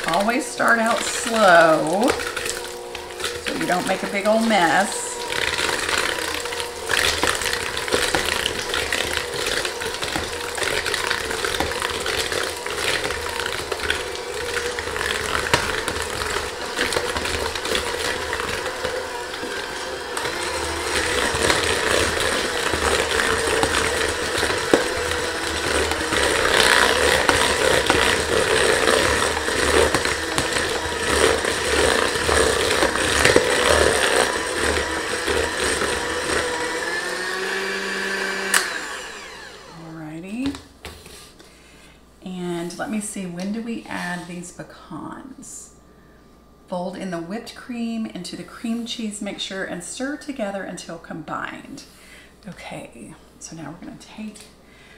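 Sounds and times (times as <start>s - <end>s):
electric mixer running: 0.0s - 40.6s
mixer beaters rattling: 0.0s - 40.6s.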